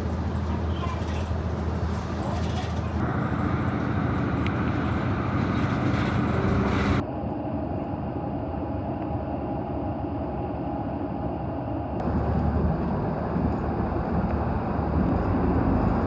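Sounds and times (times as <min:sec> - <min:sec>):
vehicle running noise from inside: 0:12.0 - 0:16.0.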